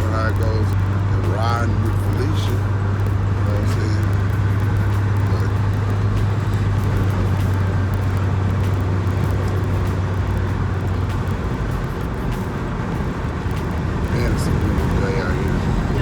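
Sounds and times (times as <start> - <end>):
car engine drone: 0.0 - 16.0.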